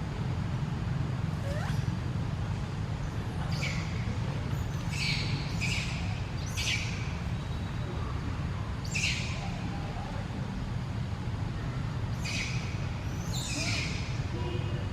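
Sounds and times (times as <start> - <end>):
animal squawking calls: 1.4 - 1.9.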